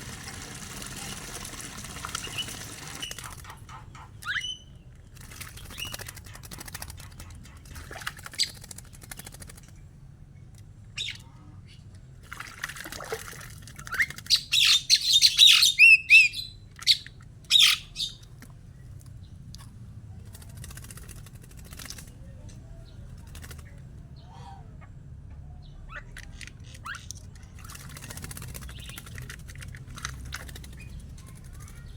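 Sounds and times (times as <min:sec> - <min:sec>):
starling chirps and whistles: 0:14.3 - 0:18.2.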